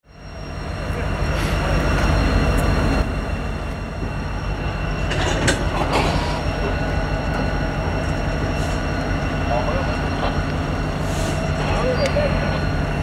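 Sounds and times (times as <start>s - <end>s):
train rumbling past: 0.0s - 13.0s.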